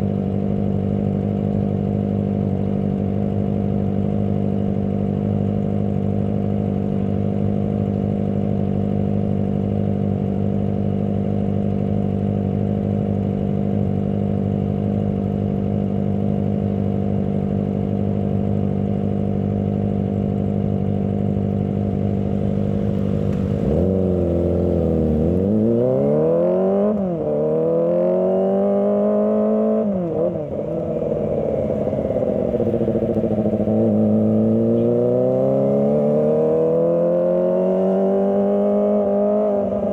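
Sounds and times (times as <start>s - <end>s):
motorcycle engine revving: 20.6s - 39.9s.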